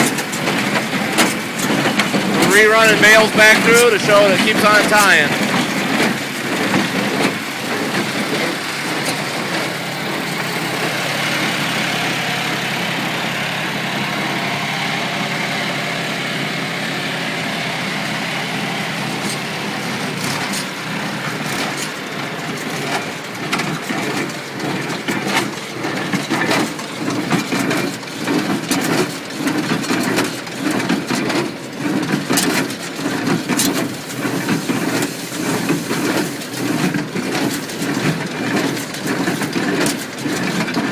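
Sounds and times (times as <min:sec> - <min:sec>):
hay baler running: 0:00.0 - 0:40.9.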